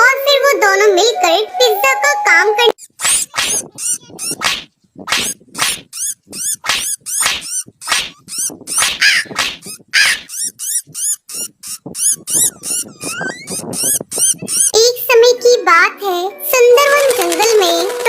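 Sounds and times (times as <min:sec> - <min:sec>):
dog barking and yipping: 0:06.0 - 0:10.5, 0:12.0 - 0:14.8.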